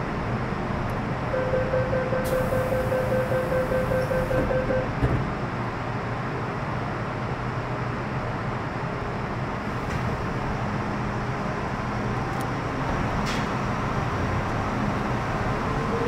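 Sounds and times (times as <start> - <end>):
low rumble inside train car: 0.0 - 16.0
door-closing warning tone: 1.3 - 5.1
train doors knocking shut: 4.0 - 5.4.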